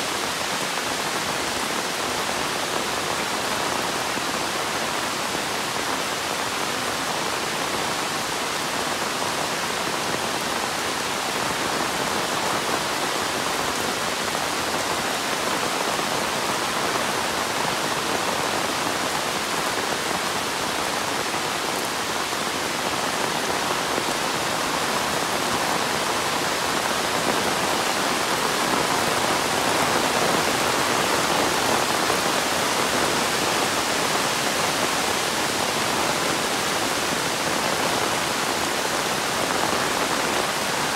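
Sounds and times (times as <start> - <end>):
heavy rain hiss: 0.0 - 40.9.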